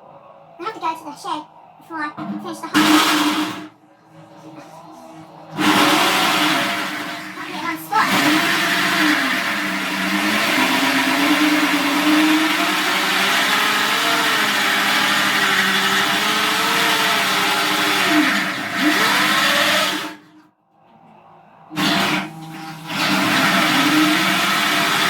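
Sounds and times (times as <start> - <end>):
electric drill with hole saw on steel: 2.8 - 3.7, 5.6 - 20.4, 21.8 - 25.0.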